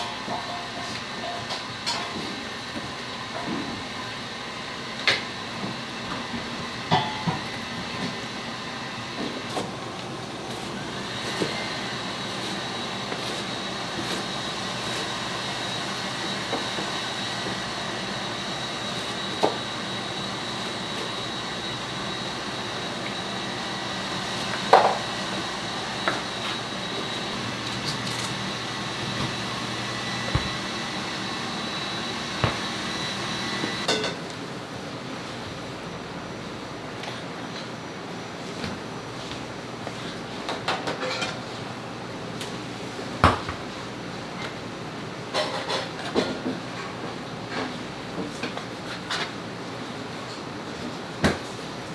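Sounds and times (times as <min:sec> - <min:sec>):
kitchen equipment humming: 0:00.0 - 0:34.2.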